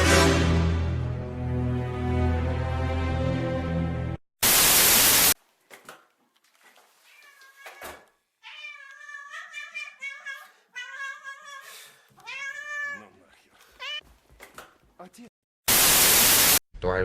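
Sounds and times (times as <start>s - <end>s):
loud hiss burst: 4.4s - 5.4s, 15.7s - 16.6s
cat meowing: 7.0s - 14.0s.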